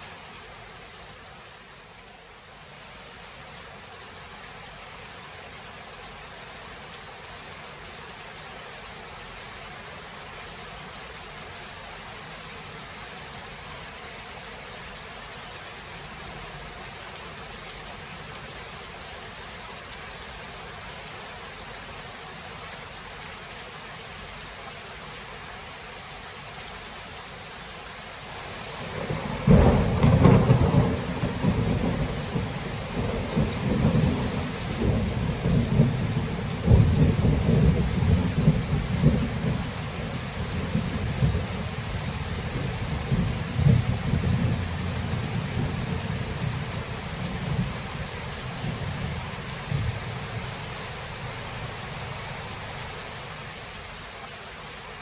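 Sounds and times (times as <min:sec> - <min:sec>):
steady rain: 0:00.0 - 0:55.0
thunder rumbling: 0:28.4 - 0:52.6.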